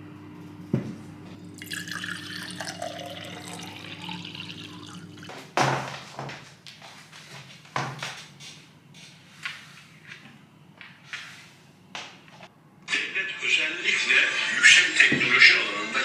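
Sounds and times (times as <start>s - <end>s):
water pouring: 1.4s - 5.4s.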